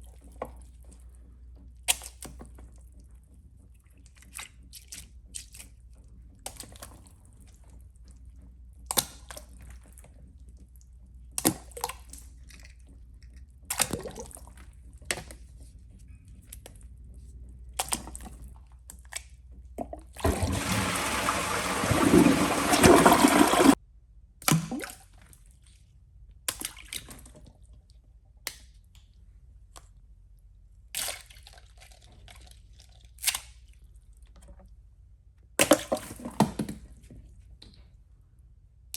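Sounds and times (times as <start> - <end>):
toilet flushing: 20.1 - 23.8.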